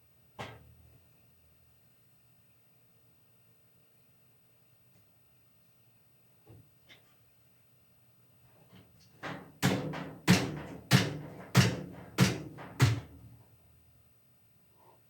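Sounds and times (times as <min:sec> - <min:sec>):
hammer striking metal: 0:09.6 - 0:13.1.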